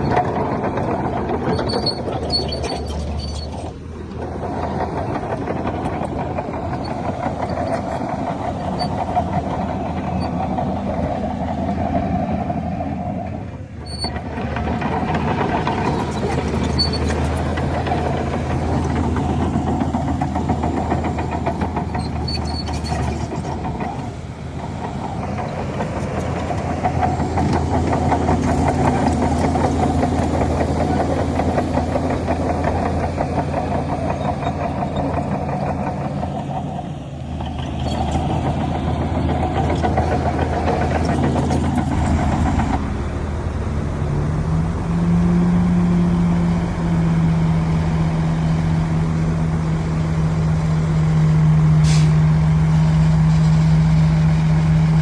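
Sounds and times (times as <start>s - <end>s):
heavy diesel engines running: 0.0s - 55.0s
higher engine tone: 25.0s - 55.0s.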